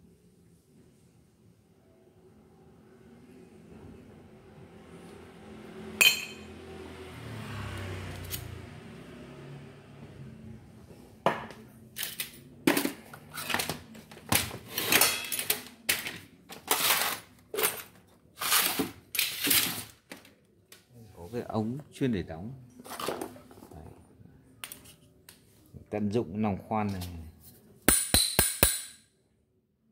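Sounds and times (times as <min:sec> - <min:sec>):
metal clink: 0:06.0 - 0:06.5.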